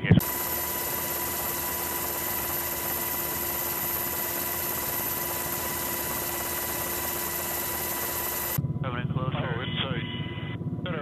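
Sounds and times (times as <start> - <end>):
helicopter cabin noise: 0.0 - 8.6.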